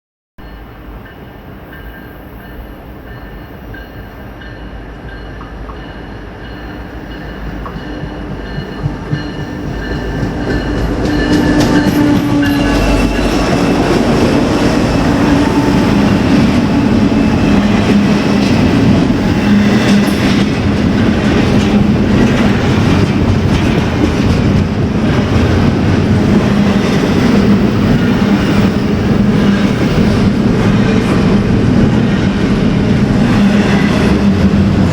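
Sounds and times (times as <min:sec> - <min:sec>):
train wheels rolling: 0:01.1 - 0:34.9
wheels clicking over rail joints: 0:16.2 - 0:27.8.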